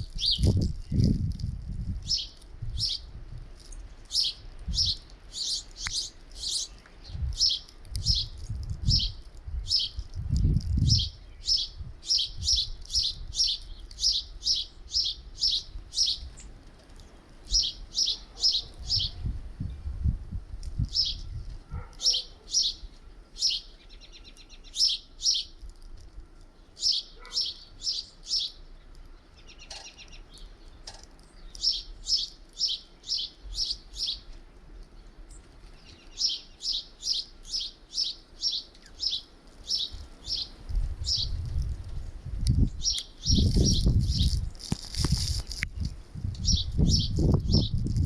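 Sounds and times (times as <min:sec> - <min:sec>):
songbirds chirping: 0:00.0 - 0:20.1, 0:20.7 - 0:47.8
buzzy bird trill: 0:03.7 - 0:16.5, 0:26.8 - 0:28.6, 0:31.4 - 0:34.3, 0:35.8 - 0:41.5, 0:42.6 - 0:44.5, 0:46.4 - 0:47.8.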